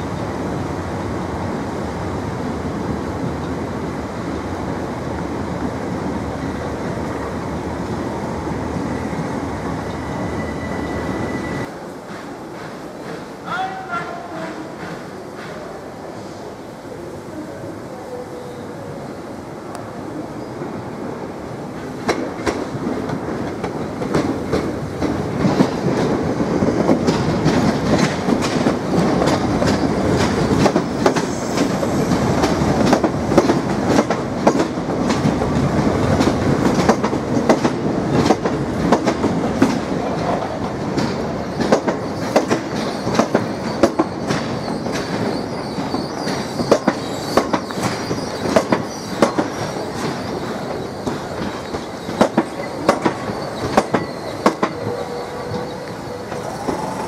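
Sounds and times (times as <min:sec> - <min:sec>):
electric trains rumbling: 0:00.0 - 0:57.0.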